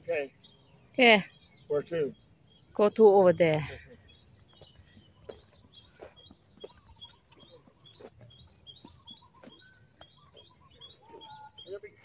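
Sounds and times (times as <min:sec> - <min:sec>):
small birds chirping: 0:00.0 - 0:12.0
footsteps on a dirt path: 0:03.6 - 0:12.0.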